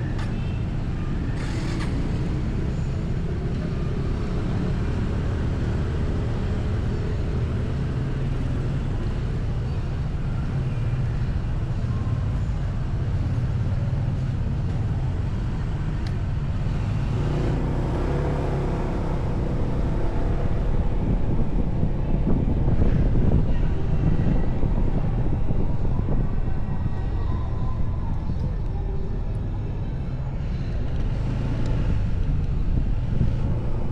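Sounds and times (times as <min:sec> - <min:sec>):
motorcycle engine hum: 0:00.0 - 0:33.9
wind noise on microphone: 0:00.0 - 0:33.9.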